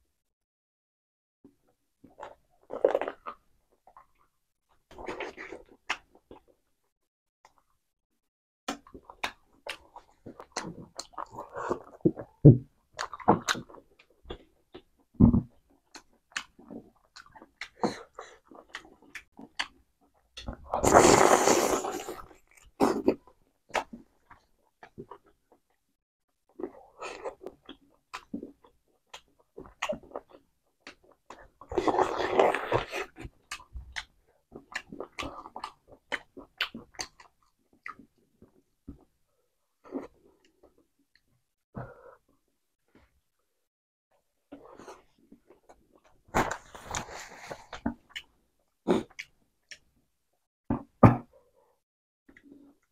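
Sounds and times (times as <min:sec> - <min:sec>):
lip smacks and wet chewing: 0:15.6 - 0:17.8.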